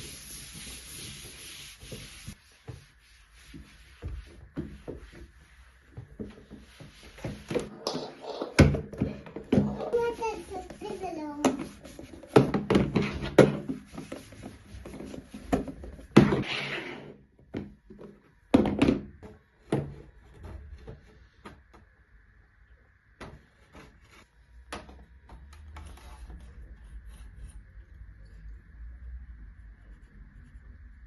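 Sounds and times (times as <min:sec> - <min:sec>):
objects knocking and thudding: 0:04.4 - 0:10.0, 0:11.4 - 0:16.4, 0:17.4 - 0:21.7.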